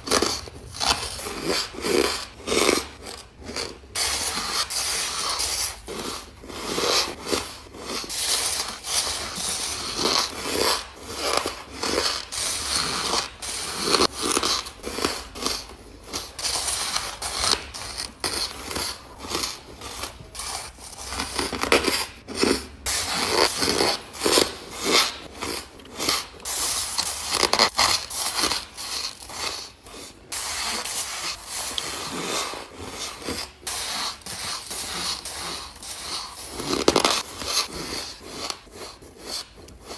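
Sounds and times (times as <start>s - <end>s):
chewing crunchy ice: 0.0s - 4.5s.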